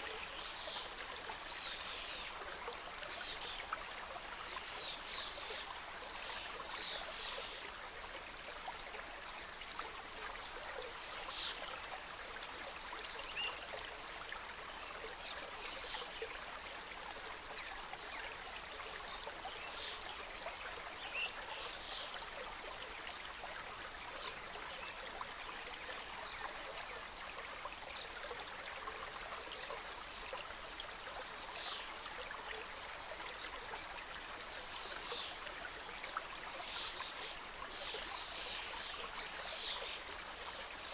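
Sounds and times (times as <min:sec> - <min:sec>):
stream flowing over rocks: 0:00.0 - 0:40.9.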